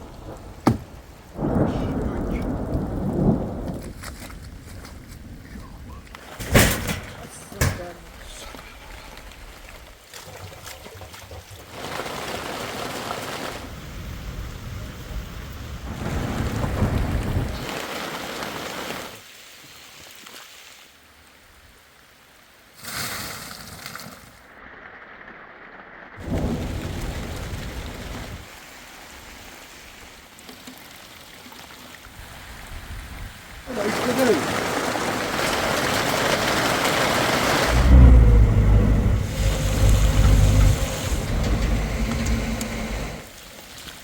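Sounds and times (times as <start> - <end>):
deep thunder rumble: 0.0 - 9.9, 13.8 - 17.7, 26.2 - 28.5, 35.8 - 43.2
heavy rain: 0.0 - 10.1, 11.6 - 19.3, 24.4 - 30.4, 32.2 - 43.6.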